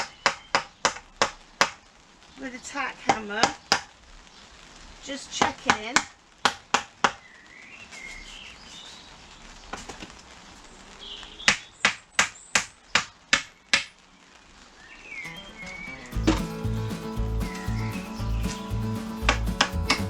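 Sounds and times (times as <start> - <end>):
small birds chirping: 0.0 - 0.9, 7.2 - 9.9, 10.9 - 20.0.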